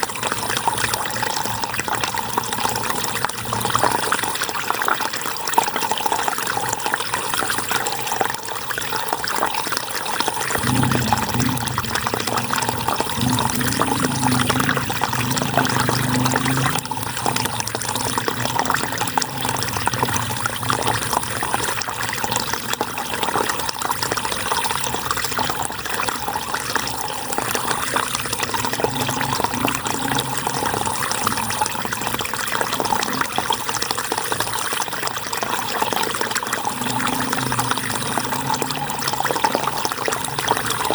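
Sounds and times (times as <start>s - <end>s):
river water flowing: 10.3s - 40.9s
deep low rumble: 10.6s - 23.6s.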